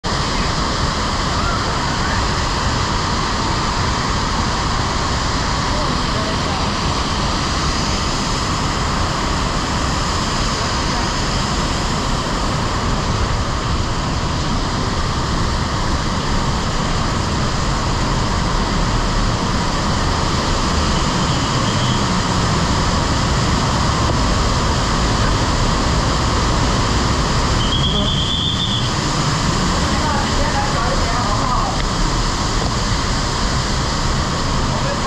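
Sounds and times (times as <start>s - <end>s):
waterfall rushing: 0.1s - 35.0s
high whistle-like tone: 27.6s - 29.0s.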